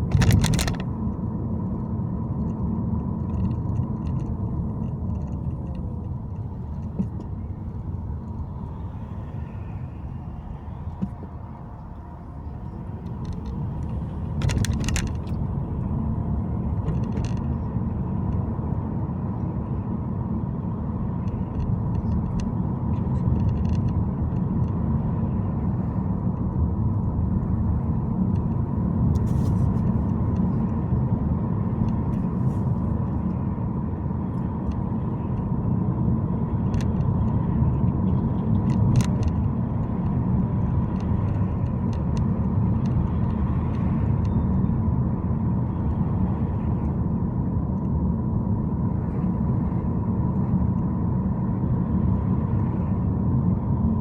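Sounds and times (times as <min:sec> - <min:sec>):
car road and engine rumble: 0:00.0 - 0:54.0
faint steady hum: 0:00.0 - 0:54.0.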